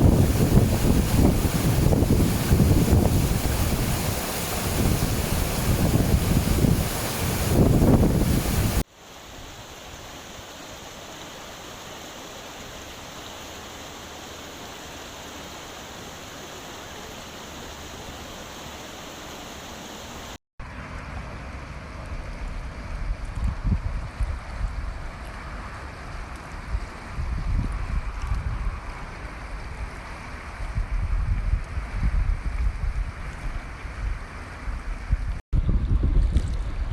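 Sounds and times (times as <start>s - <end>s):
wind buffeting microphone: 0.0s - 8.8s, 22.2s - 25.2s, 26.5s - 29.9s, 30.6s - 36.9s
rushing floodwater: 0.0s - 22.9s, 24.1s - 30.9s.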